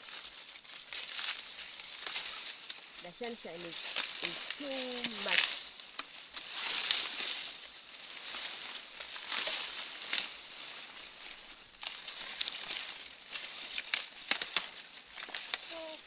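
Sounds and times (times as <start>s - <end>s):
dry maize leaves rustling: 0.0s - 16.0s
sharp snaps of stalks: 3.8s - 7.6s, 8.2s - 15.9s.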